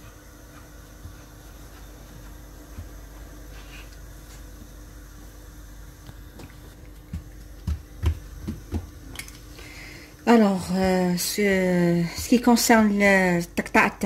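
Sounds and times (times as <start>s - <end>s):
faint steady hum: 0.0s - 14.0s
soft low thumps and taps: 6.3s - 9.0s.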